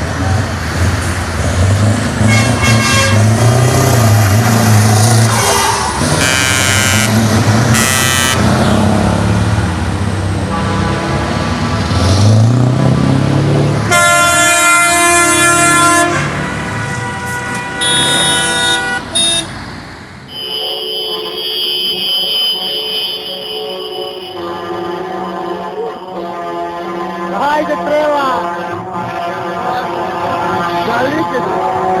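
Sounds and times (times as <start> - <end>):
truck engines revving: 0.0 - 32.0
truck air horn blasts: 2.2 - 3.8, 5.3 - 8.6, 10.4 - 11.7, 13.9 - 19.5, 20.3 - 27.4.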